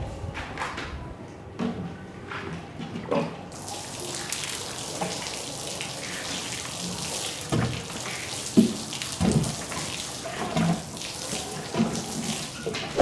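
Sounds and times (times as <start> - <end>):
water running with a hiss: 3.5 - 13.0.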